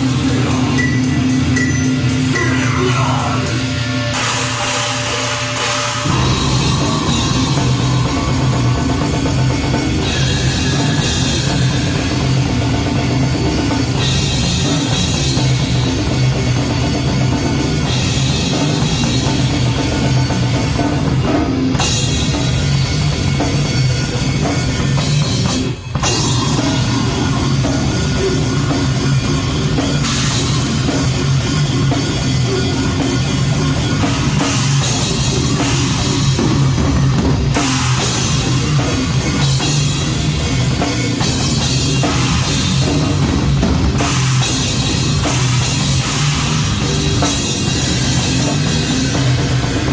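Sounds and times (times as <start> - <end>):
loud drum kit: 0.0 - 49.9
metal band playing live: 0.0 - 49.9.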